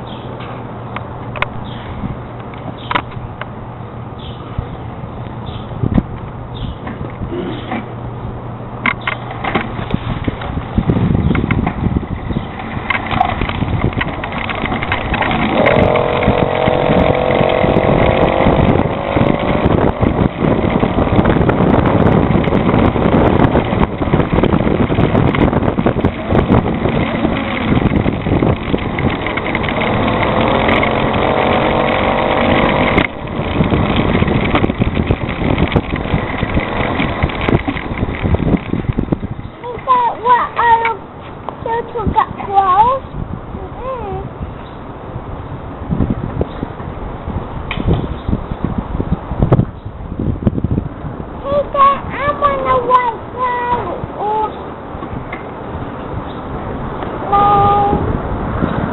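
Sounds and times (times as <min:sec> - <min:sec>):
rush of riding: 0:00.0 - 0:43.6, 0:44.3 - 0:58.9
motorized bicycle engine running: 0:12.5 - 0:39.4.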